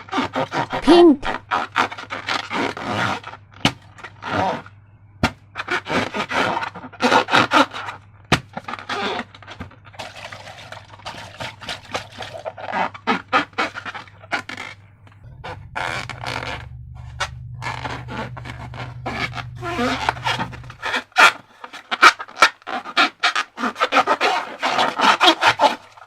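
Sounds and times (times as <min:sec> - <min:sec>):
rubber balloon scrapes: 0:00.0 - 0:26.0.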